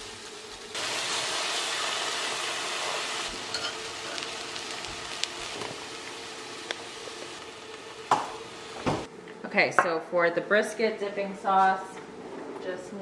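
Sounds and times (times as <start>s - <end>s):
corn sizzling in butter: 0.0s - 8.8s.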